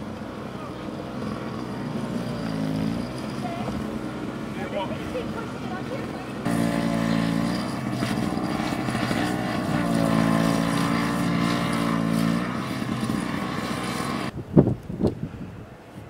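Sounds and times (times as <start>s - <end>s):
engine droning: 0.0s - 14.4s.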